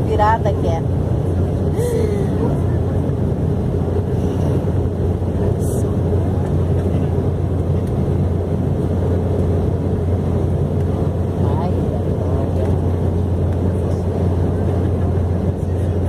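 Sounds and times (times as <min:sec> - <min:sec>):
vehicle interior drone: 0:00.0 - 0:16.0.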